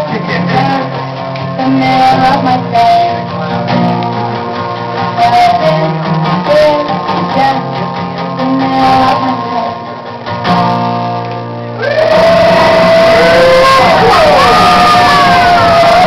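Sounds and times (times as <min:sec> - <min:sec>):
person singing: 0:00.0 - 0:03.7, 0:05.0 - 0:09.9
acoustic guitar strumming: 0:00.0 - 0:16.0.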